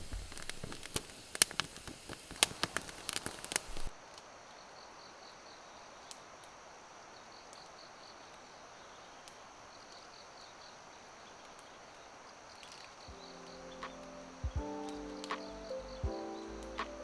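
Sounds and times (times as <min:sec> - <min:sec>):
faint clicks: 0:00.0 - 0:04.3
insects chirping: 0:00.0 - 0:17.0
steady hiss: 0:00.0 - 0:17.0
music: 0:13.1 - 0:17.0.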